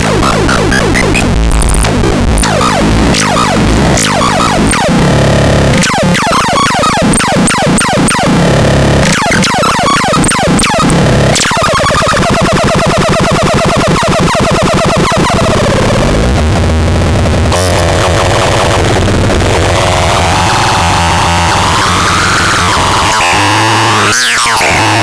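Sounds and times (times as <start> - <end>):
fast warbling electronic tone: 0.0 - 15.1.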